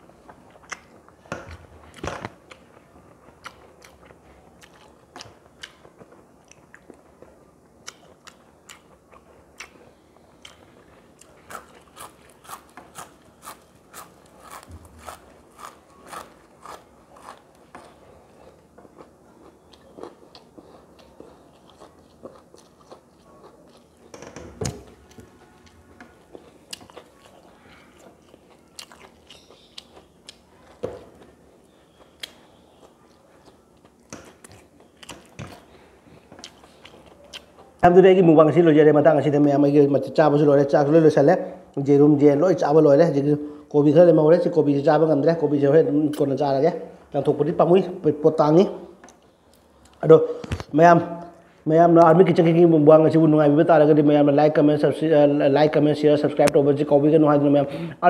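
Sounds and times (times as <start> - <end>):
person chewing food: 0.2 - 24.1, 24.9 - 37.8.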